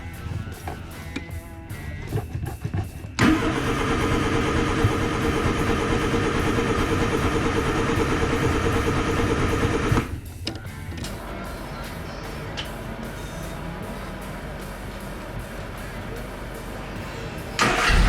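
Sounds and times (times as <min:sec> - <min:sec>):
background music: 0:00.0 - 0:18.0
vehicle engine running loudly: 0:03.2 - 0:10.2.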